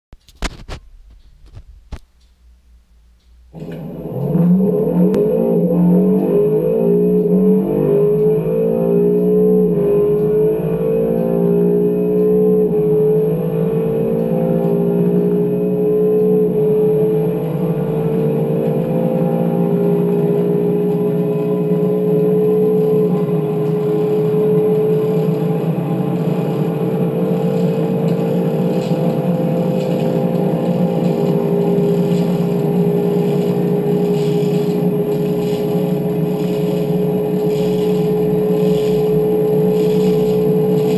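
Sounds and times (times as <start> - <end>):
car engine accelerating: 3.5 - 40.9
gear upshifts: 3.6 - 40.9
road and wind noise: 8.2 - 40.9.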